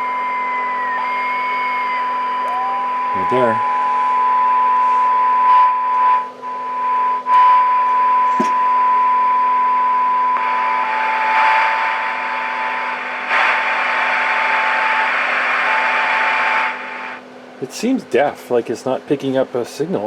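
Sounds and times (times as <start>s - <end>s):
radio hiss and static: 0.0s - 6.2s, 10.4s - 17.8s
weak steady test tone: 0.0s - 17.2s.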